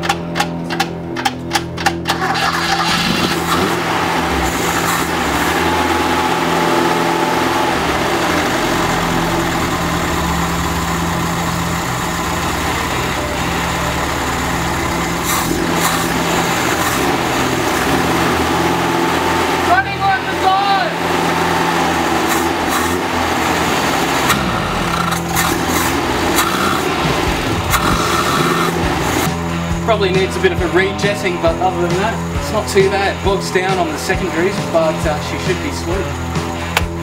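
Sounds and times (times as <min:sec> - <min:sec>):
engine cranking on starter: 0:00.0 - 0:29.4
engine running steadily: 0:00.0 - 0:37.0.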